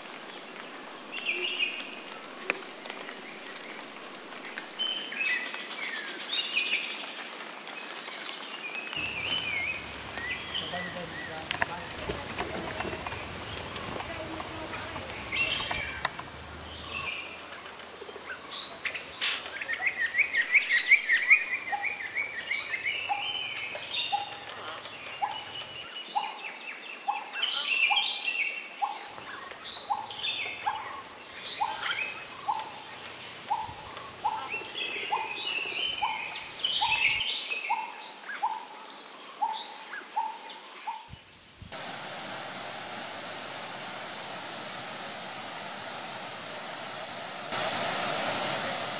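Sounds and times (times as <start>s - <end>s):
birds chirping and singing: 8.9s - 17.6s, 18.2s - 41.7s
waterfall rushing: 9.0s - 25.7s, 29.3s - 37.0s, 41.7s - 48.9s.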